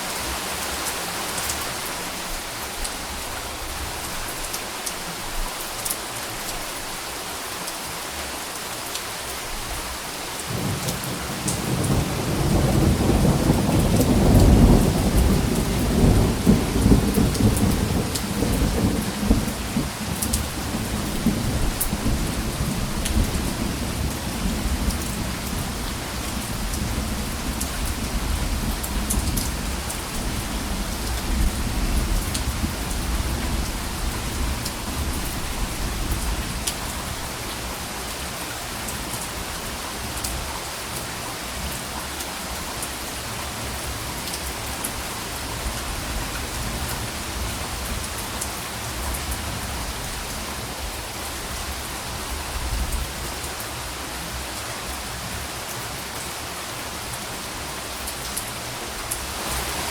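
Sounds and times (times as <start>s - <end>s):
rain pattering on a surface: 0.0s - 59.9s
soft thunder rumbling: 10.5s - 37.3s.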